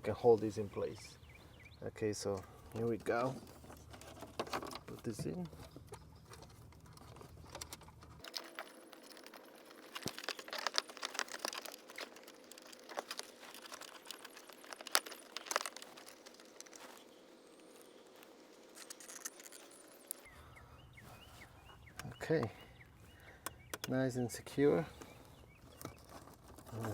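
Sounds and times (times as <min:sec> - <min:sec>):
wiring and plastic rustling: 0:02.2 - 0:20.3, 0:24.8 - 0:26.9.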